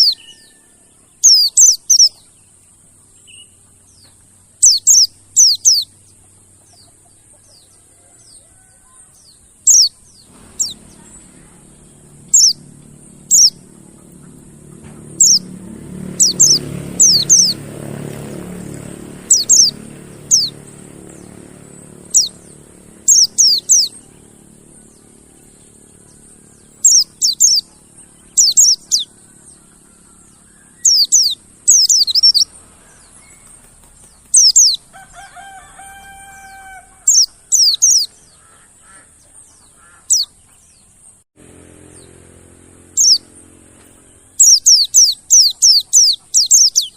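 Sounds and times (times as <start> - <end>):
bird chirping: 0.0 - 34.9, 36.4 - 41.2, 41.8 - 46.9
low murmur: 10.3 - 28.4.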